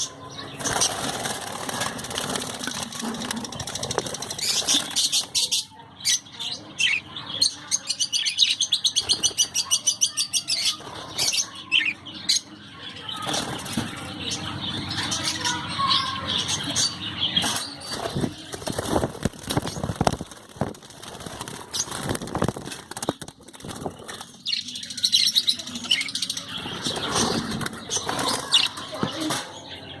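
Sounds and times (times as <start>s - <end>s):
birds chirping: 0.0s - 30.0s
wings flapping: 0.6s - 5.5s, 17.4s - 24.5s, 26.8s - 29.4s.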